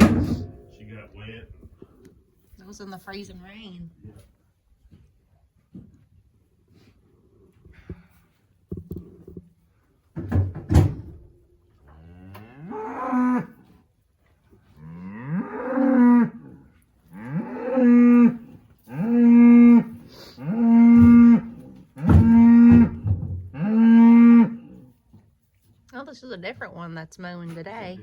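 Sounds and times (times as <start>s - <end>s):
cow mooing: 11.9s - 13.6s, 14.8s - 24.8s.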